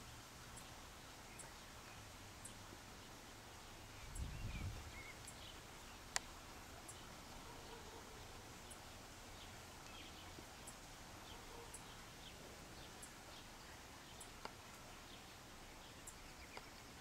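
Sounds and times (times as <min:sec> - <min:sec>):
small bird chips and chirps: 0:08.7 - 0:17.0.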